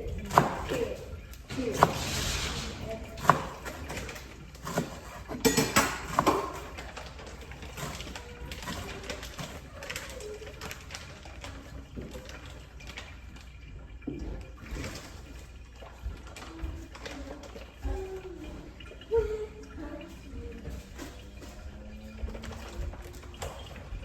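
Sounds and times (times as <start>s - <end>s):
tap water running into sink: 0.0s - 24.0s
dishes knocking: 4.7s - 6.8s.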